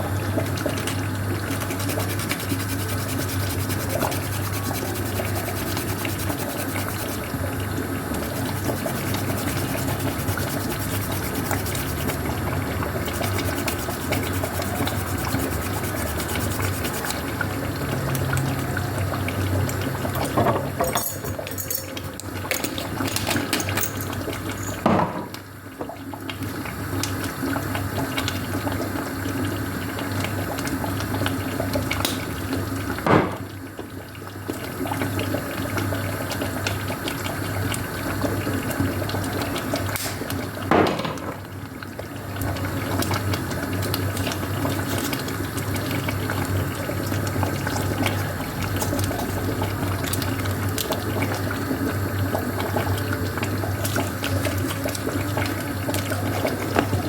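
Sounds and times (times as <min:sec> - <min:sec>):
water running: 0:00.0 - 0:24.9.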